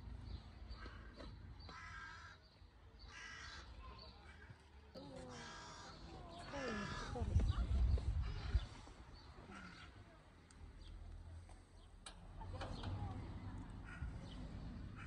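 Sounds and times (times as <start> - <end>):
harsh bird calls: 0.3 - 4.5, 5.3 - 10.0.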